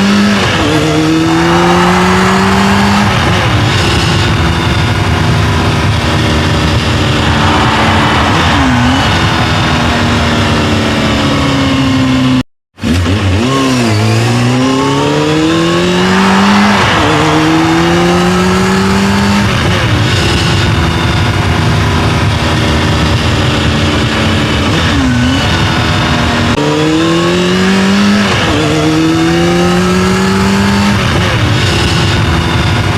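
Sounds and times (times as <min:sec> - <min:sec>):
racing engine accelerating: 0:00.0 - 0:32.9.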